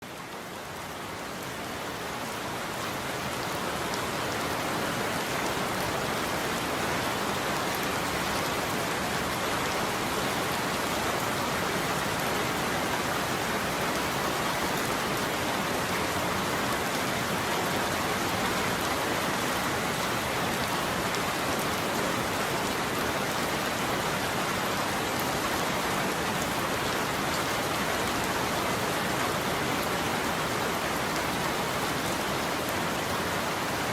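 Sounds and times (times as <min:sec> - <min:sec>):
heavy rain on a roof: 0:00.0 - 0:33.9.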